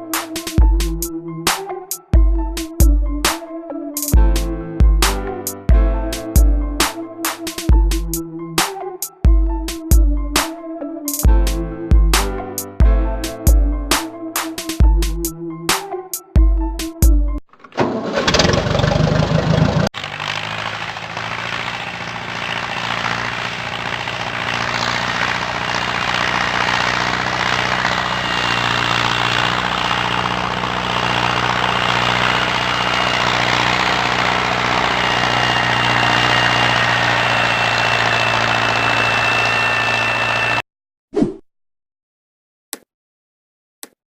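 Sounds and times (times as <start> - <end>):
tractor engine running: 17.5 - 40.6.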